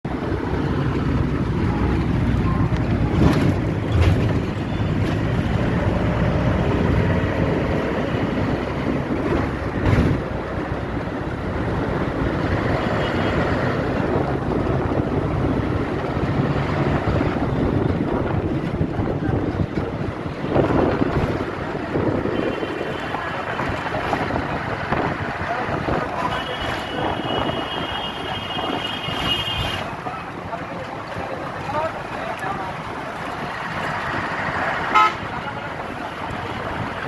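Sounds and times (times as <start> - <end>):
truck traffic rumbling: 0.0 - 37.0
wind buffeting microphone: 13.8 - 22.8.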